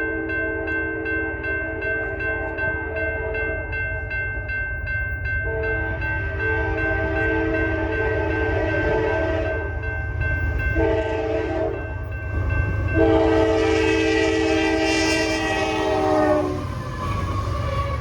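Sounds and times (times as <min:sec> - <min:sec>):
train rumbling: 0:00.0 - 0:18.0
locomotive horn blasts: 0:05.4 - 0:09.8, 0:10.7 - 0:12.0, 0:12.9 - 0:18.0.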